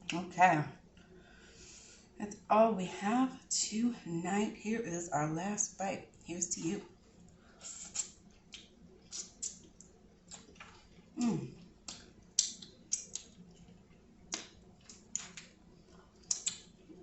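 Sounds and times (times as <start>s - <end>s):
wet mouth chewing: 7.8s - 15.5s, 16.2s - 16.7s
person humming in enjoyment: 11.2s - 11.5s.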